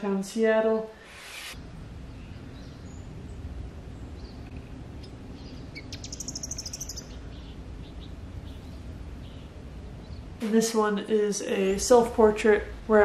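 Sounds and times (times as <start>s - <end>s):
steady low rumble: 1.6s - 10.4s
bird chirping: 2.0s - 10.4s.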